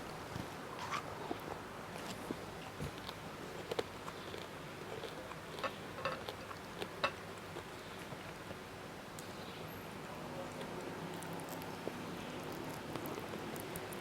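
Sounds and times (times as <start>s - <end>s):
person chewing with mouth clicks: 2.8s - 8.3s, 10.5s - 14.0s.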